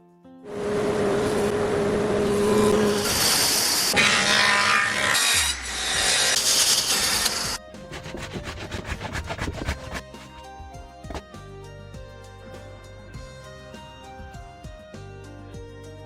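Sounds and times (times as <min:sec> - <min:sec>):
tool abrading material: 0:02.8 - 0:08.8.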